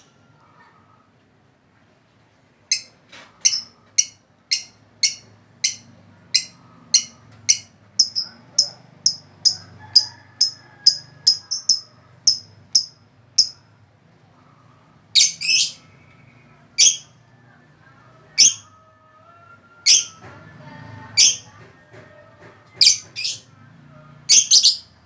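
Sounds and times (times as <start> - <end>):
bird chirping: 2.7 - 13.6, 24.3 - 25.0.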